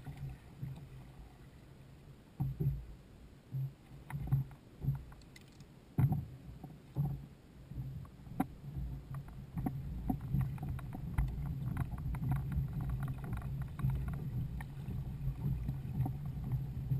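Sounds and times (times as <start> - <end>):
knocks and clicks against hull: 2.4 - 2.9, 3.5 - 16.9
steady low rumble: 5.8 - 16.9.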